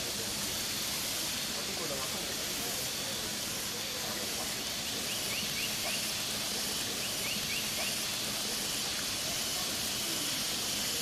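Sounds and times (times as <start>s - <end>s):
meat sizzling on a grill: 0.0s - 11.0s.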